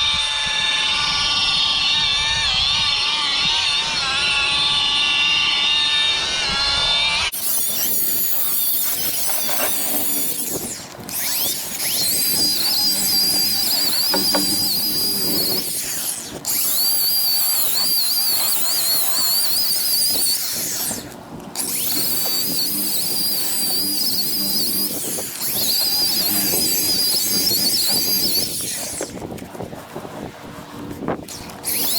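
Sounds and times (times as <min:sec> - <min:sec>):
electric buffer whining: 0:07.3 - 0:31.9.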